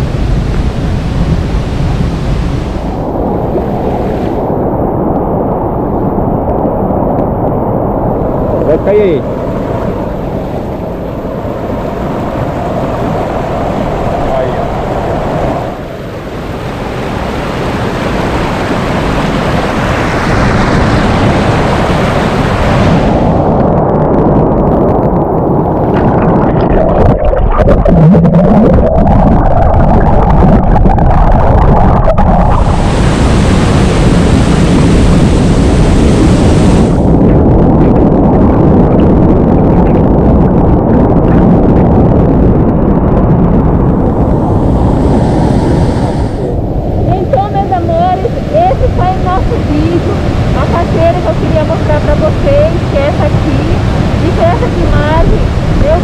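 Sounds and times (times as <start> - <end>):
waterfall rushing: 32.4 - 37.2, 44.1 - 56.0
waterfall rushing water: 32.6 - 37.1.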